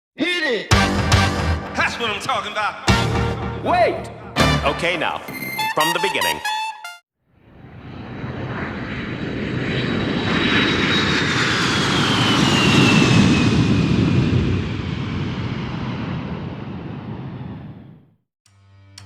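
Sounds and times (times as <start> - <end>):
aircraft engine roar: 7.3 - 18.1.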